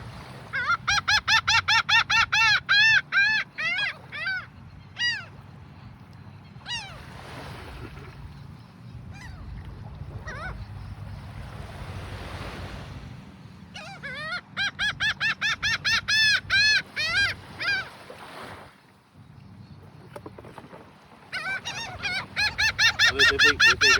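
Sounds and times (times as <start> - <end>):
birds with harsh calls: 21.2 - 23.9.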